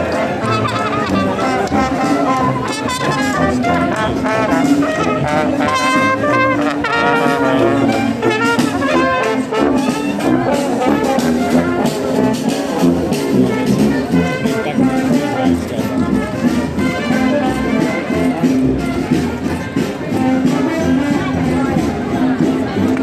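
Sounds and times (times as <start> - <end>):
brass band playing: 0.0 - 23.0.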